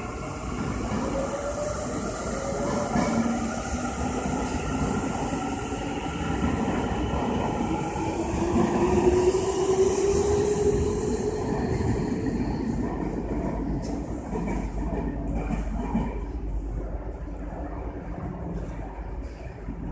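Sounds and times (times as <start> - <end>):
train wheels rumbling on rails: 0.0 - 19.9.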